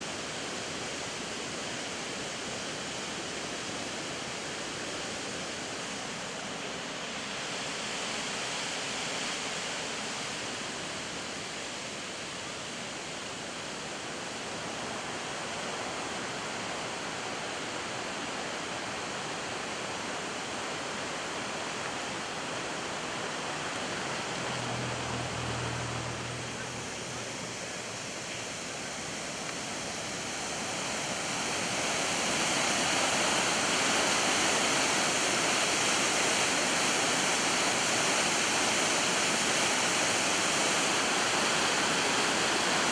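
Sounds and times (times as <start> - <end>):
water cascading into stream: 18.8 - 42.9.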